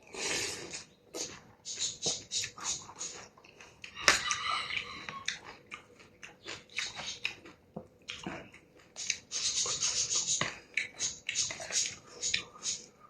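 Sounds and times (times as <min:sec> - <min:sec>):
person chewing noodles: 0:00.0 - 0:09.3.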